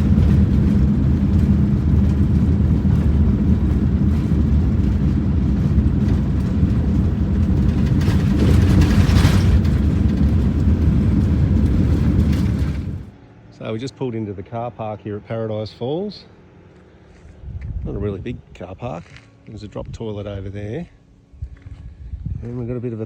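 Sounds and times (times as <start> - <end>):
tyres on gravel: 0.0 - 13.2.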